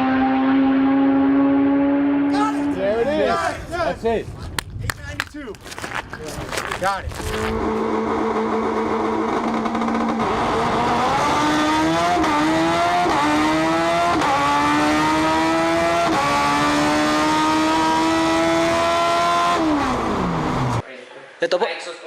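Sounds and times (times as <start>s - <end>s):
race car engine accelerating: 0.0s - 3.0s, 7.3s - 20.8s.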